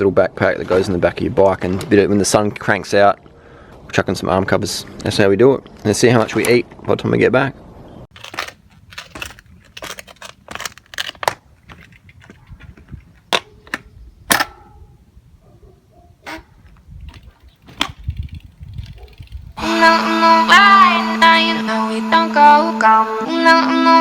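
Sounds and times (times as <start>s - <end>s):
sharp clicks and knocks: 8.1s - 14.9s, 16.2s - 19.4s.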